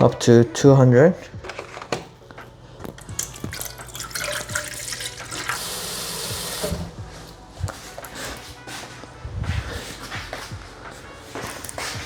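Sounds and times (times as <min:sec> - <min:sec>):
liquid pouring into a cup: 0:02.9 - 0:07.0.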